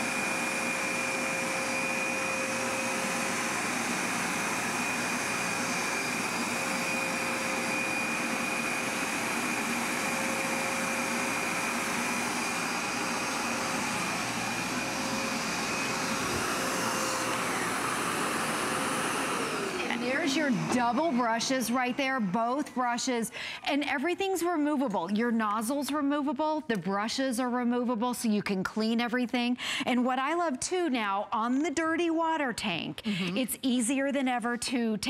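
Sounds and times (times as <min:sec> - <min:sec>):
carpet cleaner suction and whine: 0:00.0 - 0:23.2.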